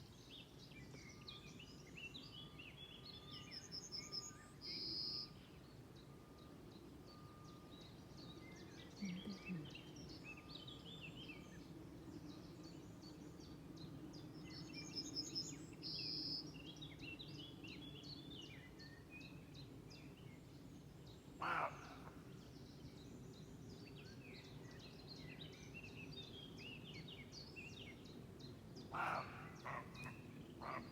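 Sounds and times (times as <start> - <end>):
animals chirping: 21.4 - 22.2, 28.9 - 30.9.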